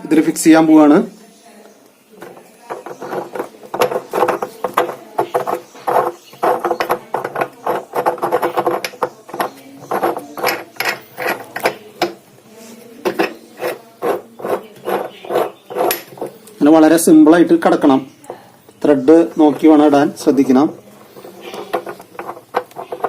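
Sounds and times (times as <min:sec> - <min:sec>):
nut threading clicks and rattles: 0:02.2 - 0:12.3, 0:18.2 - 0:23.0.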